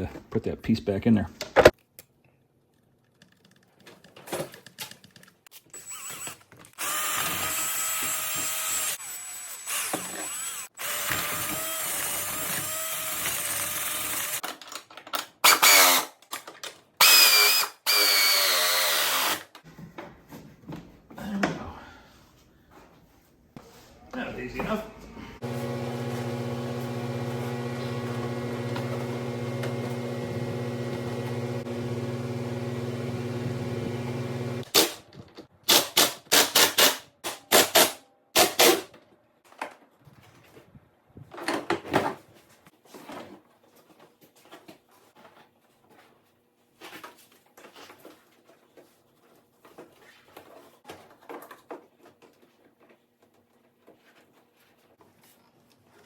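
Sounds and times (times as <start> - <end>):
electrical hum: 25.4 - 34.6.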